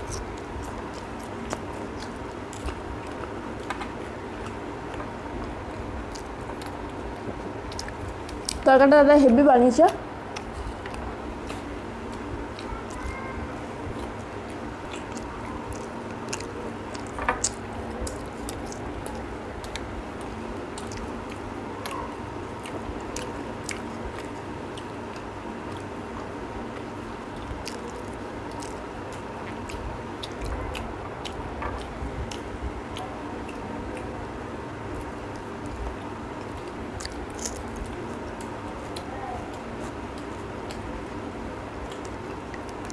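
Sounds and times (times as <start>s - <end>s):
faint hum: 0.0s - 42.9s
wet chewing: 0.0s - 42.9s.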